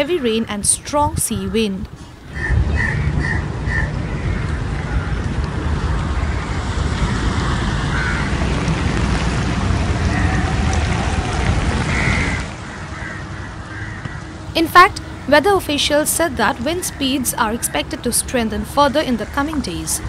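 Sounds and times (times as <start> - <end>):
strong wind: 0.0 - 20.0
bird calls: 2.2 - 5.2
sea surf: 2.3 - 14.0.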